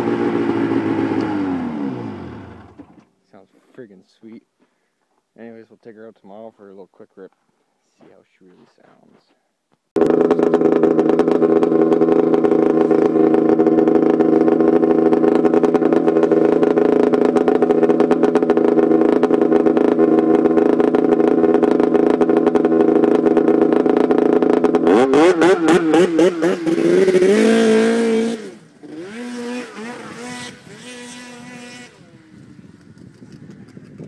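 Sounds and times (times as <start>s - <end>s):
snowmobile engine idling and revving: 0.0s - 3.1s, 10.0s - 34.0s.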